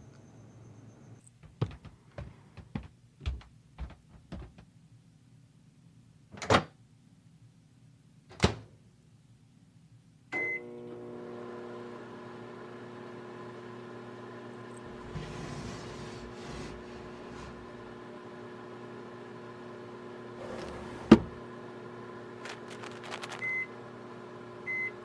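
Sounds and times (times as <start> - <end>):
microwave oven humming: 10.4 - 25.0.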